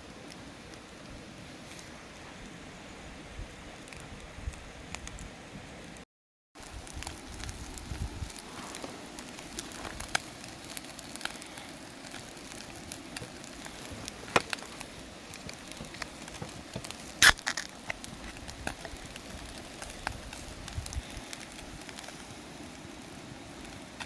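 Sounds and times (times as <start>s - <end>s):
sharp cracks of burning wood: 0.0s - 5.3s, 6.6s - 24.0s
campfire crackling and popping: 0.0s - 6.0s, 6.6s - 24.0s.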